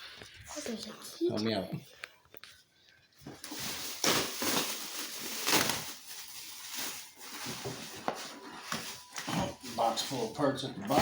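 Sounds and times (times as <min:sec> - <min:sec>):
cardboard packaging rustling: 0:03.2 - 0:10.7.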